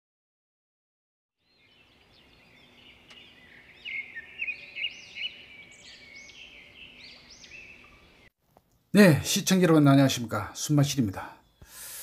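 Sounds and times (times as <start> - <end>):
birds singing and chirping: 1.4 - 8.3, 10.6 - 12.0.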